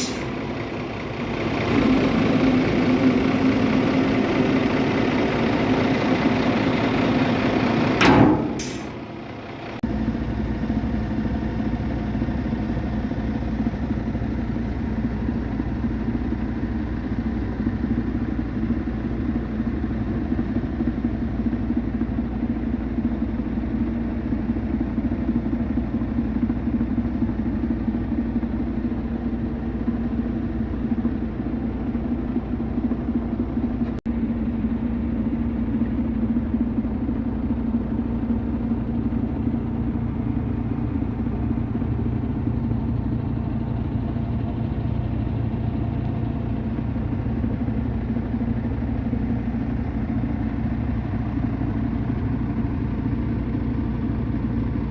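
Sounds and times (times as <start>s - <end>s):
truck diesel engine idling: 0.0s - 54.9s
loud sharp sound: 8.0s - 9.0s.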